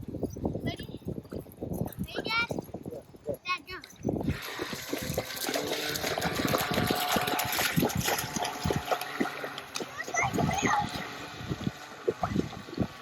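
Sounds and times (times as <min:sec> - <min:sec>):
small knocks and sloshes: 0:03.8 - 0:13.0
water splashing and gushing: 0:04.2 - 0:13.0.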